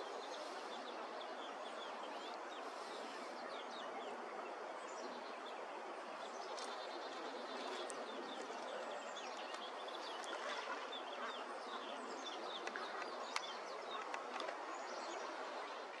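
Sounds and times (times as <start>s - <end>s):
birds chirping: 4.8s - 16.0s.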